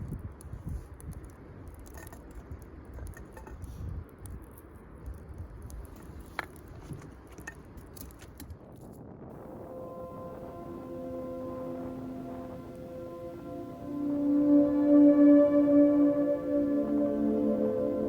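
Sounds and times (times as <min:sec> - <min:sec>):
campfire crackling and popping: 0:04.0 - 0:08.5
low rumble: 0:09.3 - 0:18.0.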